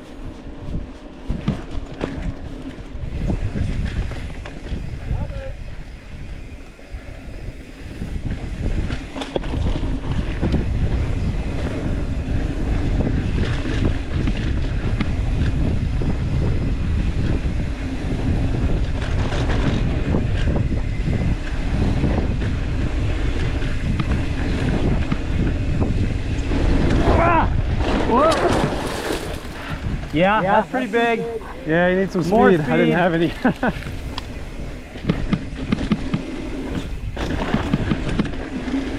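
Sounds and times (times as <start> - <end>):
wind on microphone: 0.0 - 38.9
bike clicks and knocks: 0.2 - 2.9, 8.8 - 10.8, 13.2 - 15.8, 33.4 - 38.9
tyres rolling on dirt: 7.4 - 38.9.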